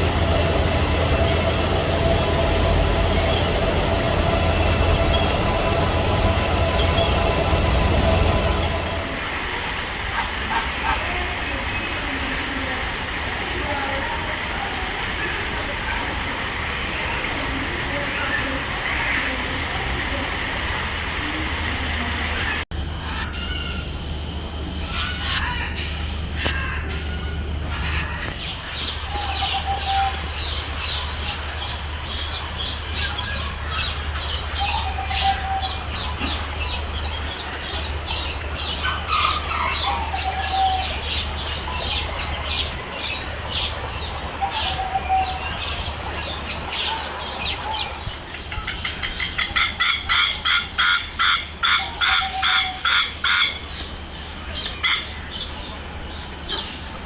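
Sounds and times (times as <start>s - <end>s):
birds chirping: 0.0s - 9.2s, 22.2s - 57.0s
steady low hum: 22.1s - 48.0s.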